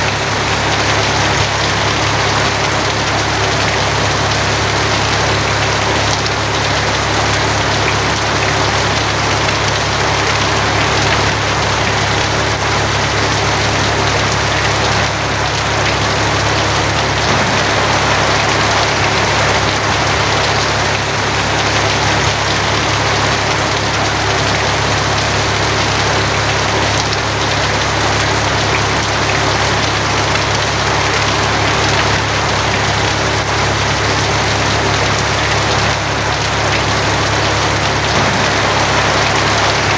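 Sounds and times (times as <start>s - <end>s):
heavy rain on a tin roof: 0.0s - 39.9s
low hum: 15.4s - 21.2s, 37.2s - 39.9s.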